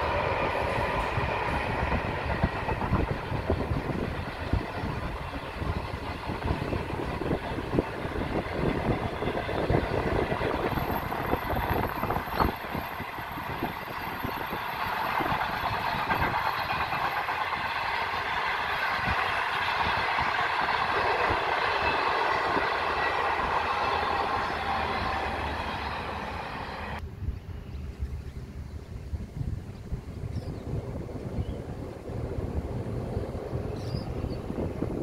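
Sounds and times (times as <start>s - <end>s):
wheels clacking over rail joints: 0.0s - 27.0s
train rumbling over bridge: 0.0s - 35.0s.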